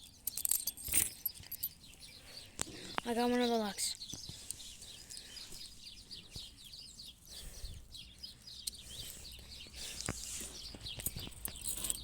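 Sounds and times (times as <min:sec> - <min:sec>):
keys clicking in a lock: 0:00.0 - 0:01.8, 0:11.0 - 0:12.0
small birds chirping: 0:00.0 - 0:12.0.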